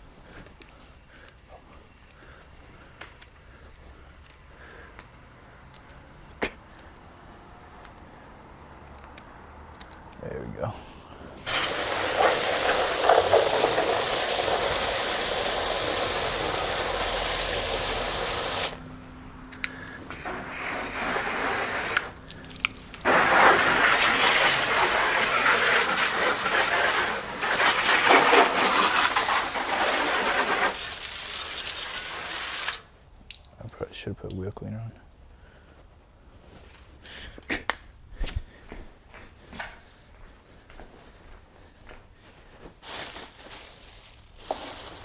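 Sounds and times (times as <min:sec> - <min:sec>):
water spraying onto car: 0:11.3 - 0:19.0, 0:20.1 - 0:32.9.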